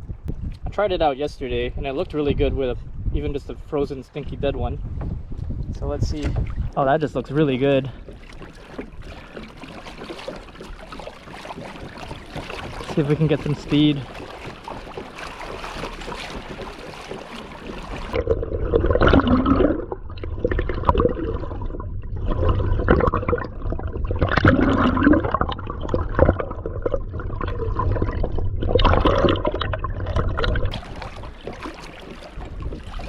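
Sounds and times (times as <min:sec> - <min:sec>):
water rushing and gurgling: 0:06.0 - 0:33.0.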